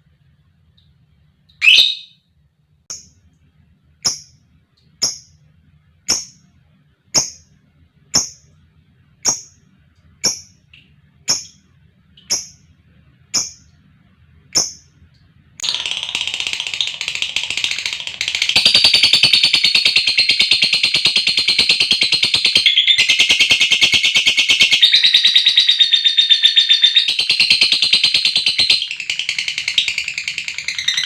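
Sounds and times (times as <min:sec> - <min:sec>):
lovebird chirping: 0:01.5 - 0:02.2, 0:07.2 - 0:07.5, 0:10.2 - 0:11.6, 0:12.2 - 0:12.6, 0:13.3 - 0:13.7, 0:14.6 - 0:14.9.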